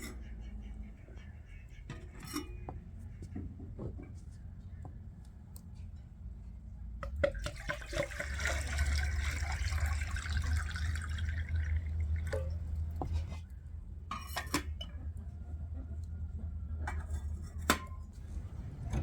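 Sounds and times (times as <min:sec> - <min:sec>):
liquid pouring into a glass: 0:07.3 - 0:13.2.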